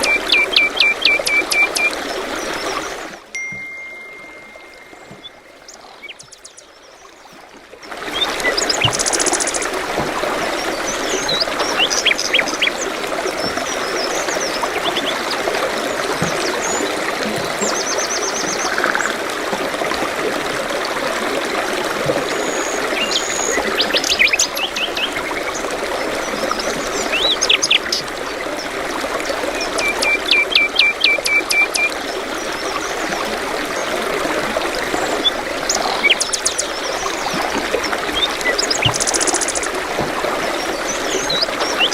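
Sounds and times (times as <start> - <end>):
stream flowing: 0.0 - 41.9
birds chirping and trilling: 4.4 - 7.4, 35.0 - 37.3, 38.0 - 39.7.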